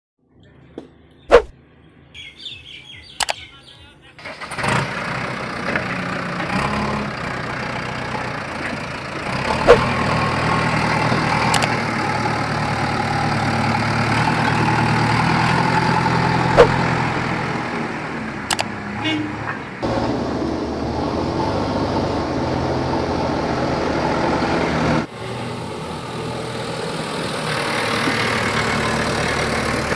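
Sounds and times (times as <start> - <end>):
diesel engine running: 4.2 - 29.9
light clicks: 11.5 - 11.7.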